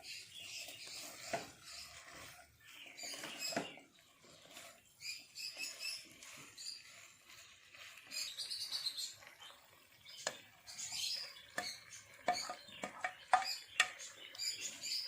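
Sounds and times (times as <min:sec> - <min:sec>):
utensil clinking on cookware: 0:11.6 - 0:14.1.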